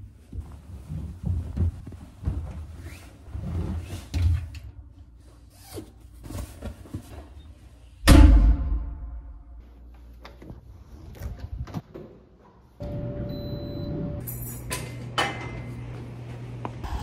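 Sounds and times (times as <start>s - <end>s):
rustling and scraping: 0.0s - 4.5s.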